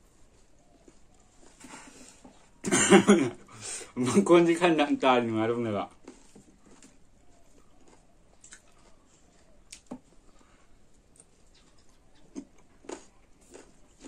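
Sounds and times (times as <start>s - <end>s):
person chewing fruit: 0.0s - 2.6s, 5.9s - 14.0s.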